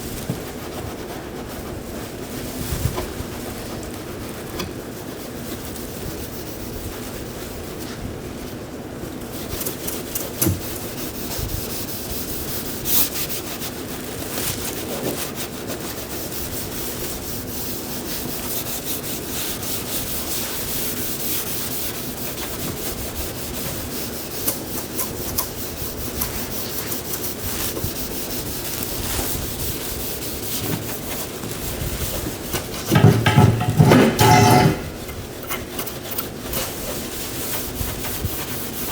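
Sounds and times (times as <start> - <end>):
sanding car body panel: 9.3 - 14.1, 14.7 - 38.9.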